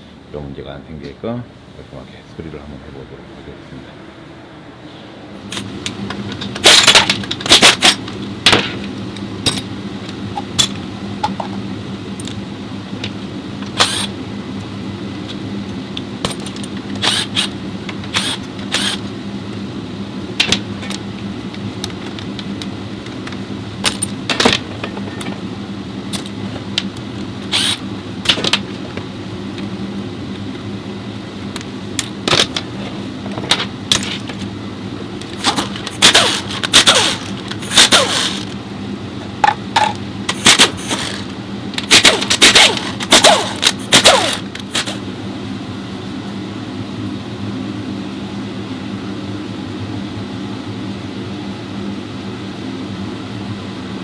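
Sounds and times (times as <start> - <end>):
steady low hum: 0.0 - 54.0
metal tools clinking: 23.8 - 25.4, 35.2 - 38.6, 39.4 - 41.2, 41.8 - 45.0.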